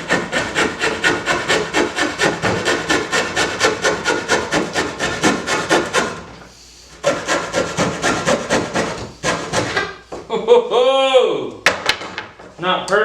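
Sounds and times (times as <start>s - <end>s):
hand saw cutting wood: 0.0s - 6.3s, 7.0s - 10.0s.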